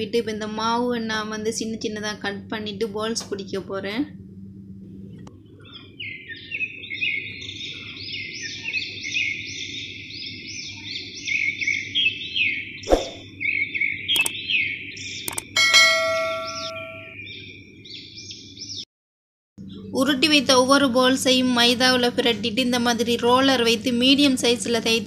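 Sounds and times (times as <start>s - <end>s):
low steady hum: 0.0s - 12.1s, 19.6s - 25.0s
small birds chirping: 5.0s - 18.9s.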